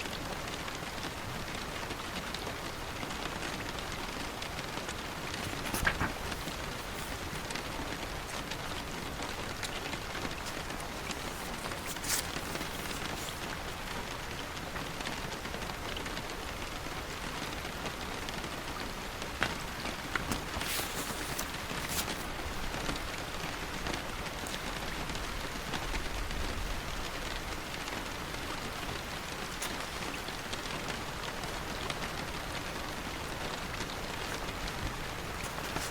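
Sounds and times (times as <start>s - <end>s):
steady rain falling: 0.0s - 35.9s
crisp ticks or rustles: 5.2s - 14.0s, 19.4s - 22.4s, 28.9s - 31.0s, 33.4s - 35.9s.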